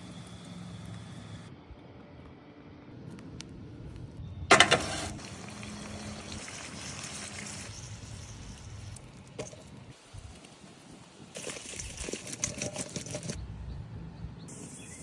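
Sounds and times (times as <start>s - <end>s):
food sizzling on a hot grill: 5.2s - 11.2s.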